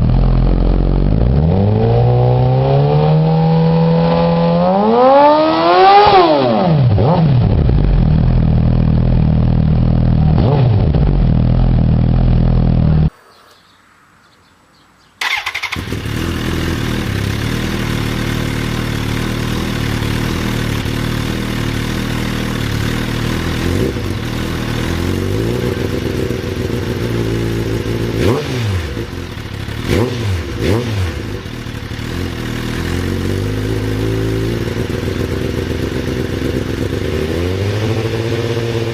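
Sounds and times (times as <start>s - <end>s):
motorcycle throttle blips: 15.2s - 22.6s
motorcycle engine idling: 15.2s - 28.2s, 29.0s - 38.9s.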